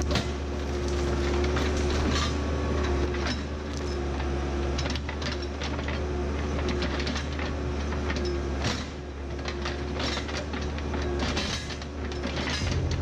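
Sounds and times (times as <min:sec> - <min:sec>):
heavy equipment engine running: 0:00.0 - 0:13.0
machine clanks and knocks: 0:04.7 - 0:13.0.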